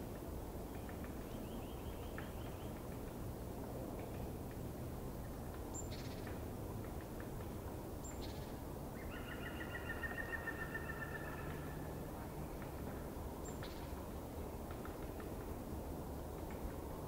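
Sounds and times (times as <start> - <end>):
low background noise: 0.0 - 17.0
songbird high calls: 9.0 - 11.8.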